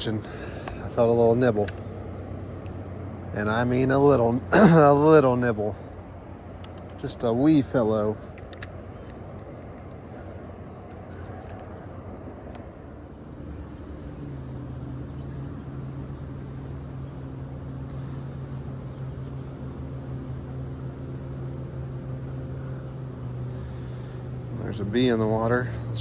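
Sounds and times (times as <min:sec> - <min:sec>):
boat engine humming: 0:00.0 - 0:26.0
faint bird chirps: 0:10.1 - 0:13.0, 0:17.0 - 0:24.7.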